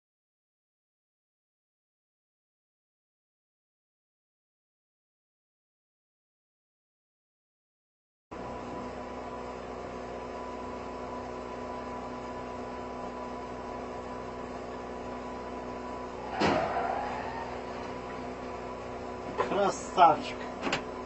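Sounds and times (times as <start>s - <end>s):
car engine and road hum: 13.6s - 21.0s.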